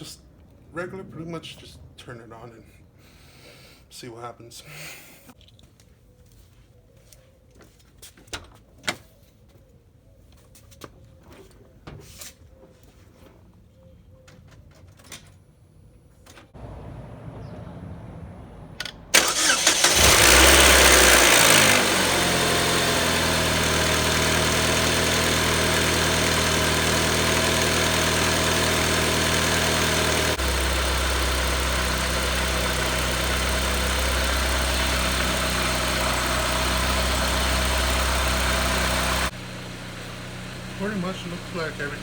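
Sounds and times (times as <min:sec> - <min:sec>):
car engine starting and idling: 0:16.6 - 0:42.0.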